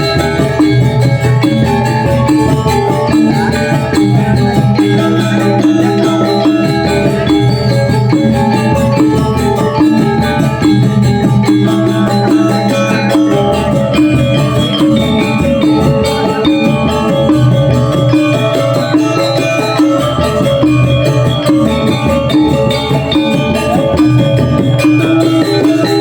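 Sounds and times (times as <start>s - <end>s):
drum: 0.0s - 26.0s
metallophones ringing: 0.0s - 26.0s.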